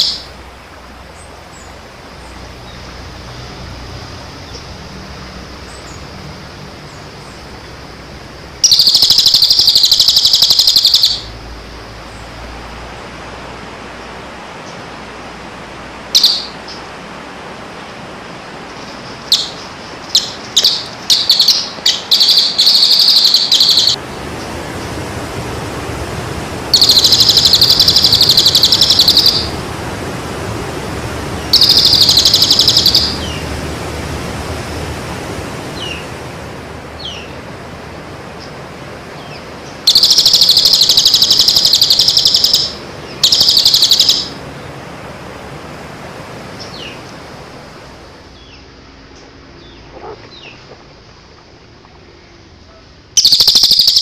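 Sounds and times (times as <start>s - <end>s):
songbird rapid high trilling: 0.0s - 0.4s, 6.8s - 12.4s, 16.2s - 16.9s, 18.7s - 24.9s, 26.6s - 29.8s, 31.3s - 33.6s, 35.6s - 36.2s, 37.0s - 37.4s, 38.3s - 44.5s, 46.6s - 47.2s, 53.2s - 54.0s.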